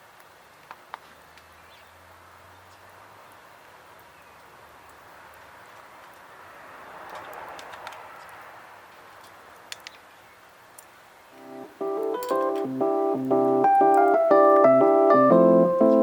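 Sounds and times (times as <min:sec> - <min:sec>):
campfire hissing and crackling: 0:00.0 - 0:16.0.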